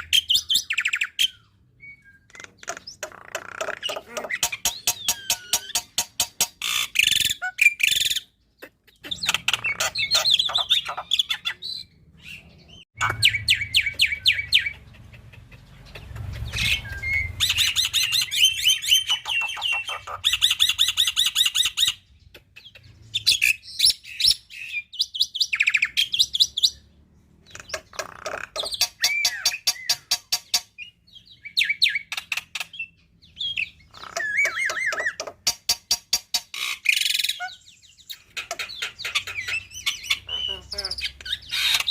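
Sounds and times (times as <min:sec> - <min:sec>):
myna chattering and whistling: 0:01.8 - 0:11.9, 0:36.6 - 0:41.9.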